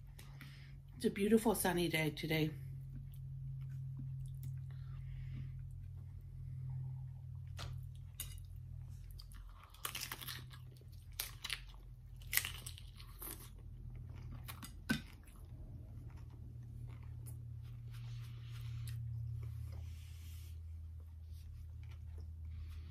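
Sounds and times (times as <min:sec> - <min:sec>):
steady low hum: 0:00.0 - 0:22.9
crunching crisp tortilla shell: 0:07.4 - 0:18.3.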